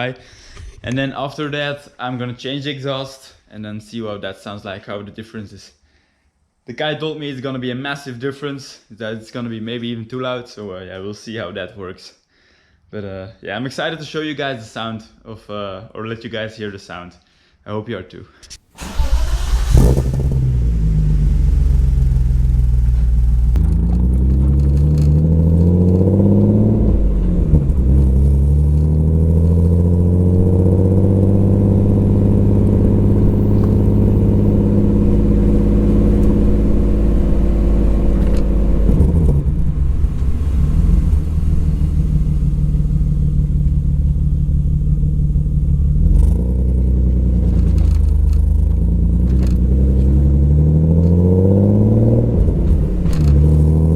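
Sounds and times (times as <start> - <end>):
car engine revving: 18.8 - 53.9.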